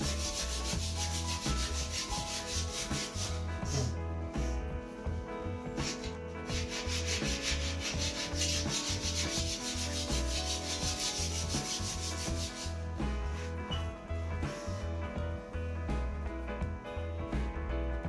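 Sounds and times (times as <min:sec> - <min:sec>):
sandpaper rubbing on wood: 0:00.0 - 0:04.0, 0:05.8 - 0:13.5.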